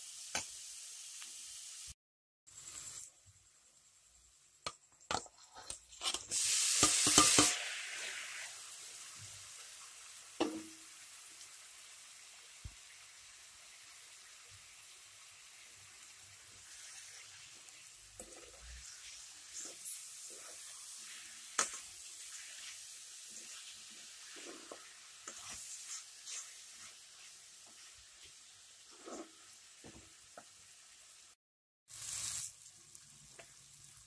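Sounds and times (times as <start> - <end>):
vegetables sizzling in a pan: 0.0 - 34.0
spatula scraping and tapping pan: 4.7 - 7.6, 18.2 - 20.8, 21.5 - 30.5.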